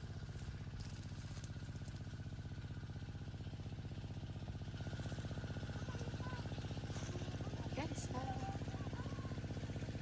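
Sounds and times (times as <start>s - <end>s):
small engine running: 0.0s - 10.0s.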